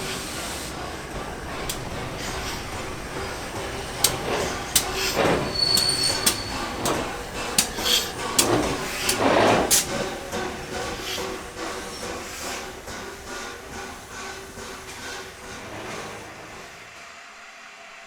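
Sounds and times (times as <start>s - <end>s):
train rumble: 0.0s - 17.5s
metallic clanks and knocks: 1.2s - 10.1s.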